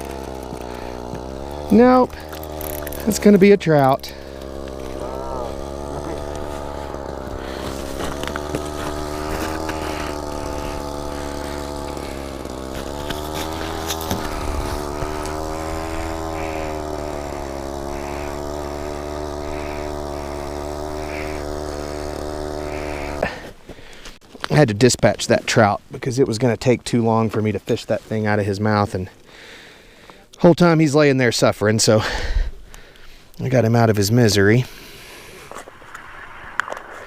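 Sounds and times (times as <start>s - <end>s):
small engine running: 0.0s - 24.2s, 31.6s - 37.0s.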